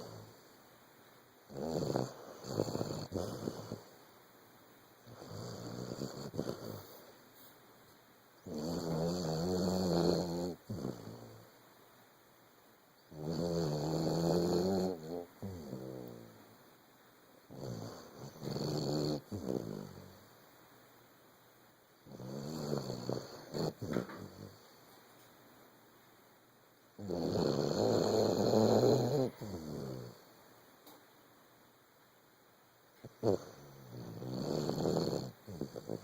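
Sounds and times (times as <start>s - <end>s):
dog snoring: 0.0s - 0.5s, 1.5s - 4.0s, 5.0s - 7.1s, 8.4s - 11.5s, 13.1s - 16.5s, 17.5s - 20.4s, 22.0s - 24.8s, 27.0s - 30.3s, 33.0s - 36.0s.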